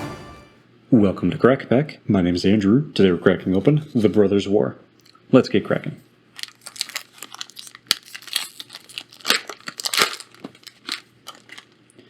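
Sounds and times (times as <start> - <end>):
foil wrapper tearing and crinkling: 6.4 - 11.9.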